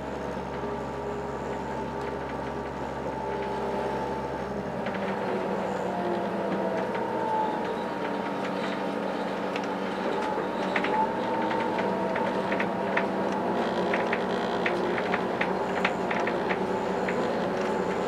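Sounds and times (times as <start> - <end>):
train hum and whine: 0.0 - 18.0.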